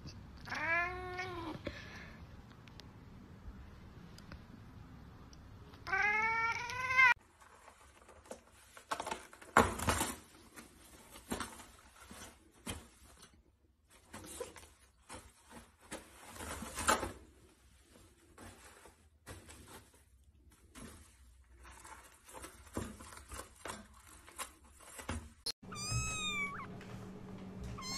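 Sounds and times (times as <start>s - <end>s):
cat meowing: 0.4s - 1.5s, 5.8s - 7.2s, 25.6s - 26.7s
paper rustling and crinkling: 7.2s - 25.4s.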